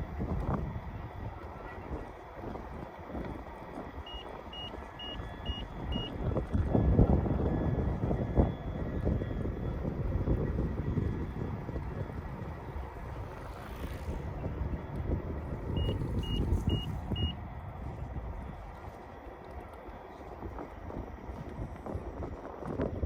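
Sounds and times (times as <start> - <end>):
wind buffeting microphone: 0.0 - 23.0
short high electronic beeps: 4.1 - 6.1, 15.8 - 17.4.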